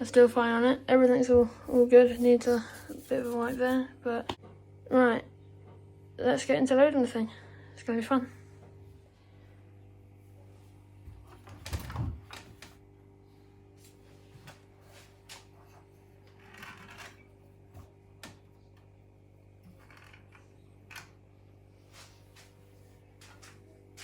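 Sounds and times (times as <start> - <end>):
steady low hum: 0.0 - 16.4.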